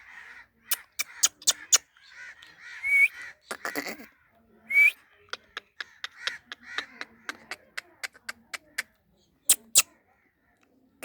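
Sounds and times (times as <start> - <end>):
parrot squawking: 0.7 - 1.8.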